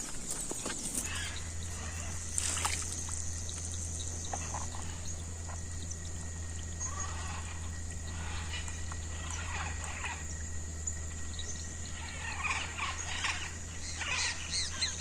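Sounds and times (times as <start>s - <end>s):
low hum: 0.0s - 15.0s
water trickling: 1.6s - 5.1s.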